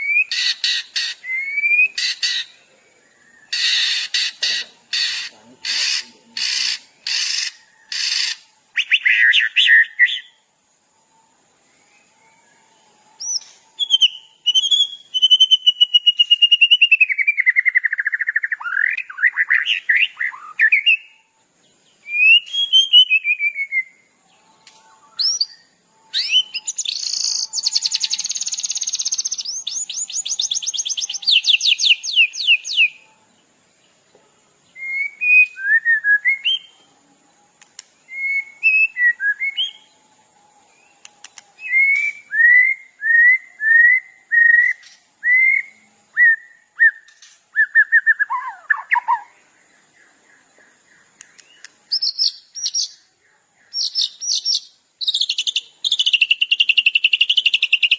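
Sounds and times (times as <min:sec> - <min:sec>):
songbird singing: 0:00.0 - 0:57.9.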